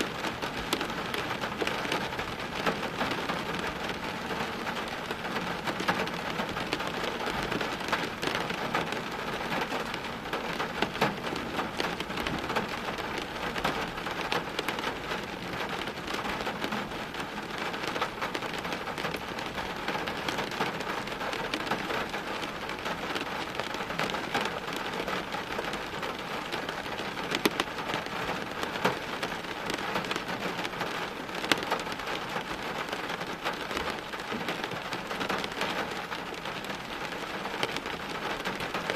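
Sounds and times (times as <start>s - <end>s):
heavy rain on hard surfaces: 0.0s - 38.9s.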